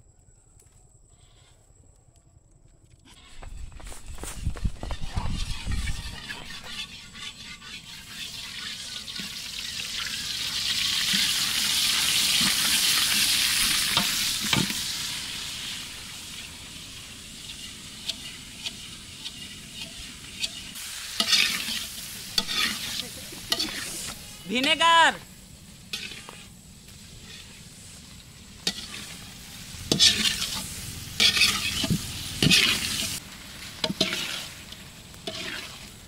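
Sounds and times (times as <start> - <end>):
food sizzling in hot oil: 4.0 - 36.0
ladle scraping a metal pan: 5.1 - 10.1, 17.4 - 24.1, 25.9 - 26.5, 27.1 - 27.6, 28.6 - 33.2, 33.8 - 36.0.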